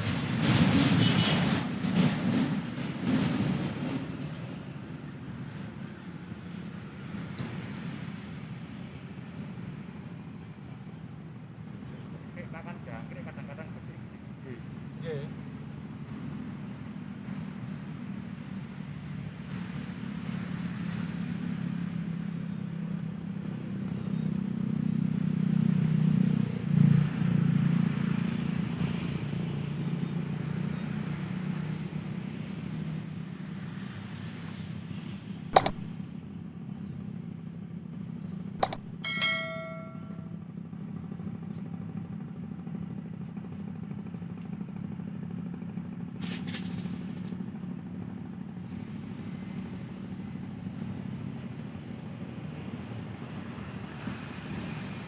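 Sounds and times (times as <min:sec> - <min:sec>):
low rumble of traffic: 0:00.0 - 0:55.0
sharp clicks: 0:35.6 - 0:36.0, 0:38.6 - 0:39.0.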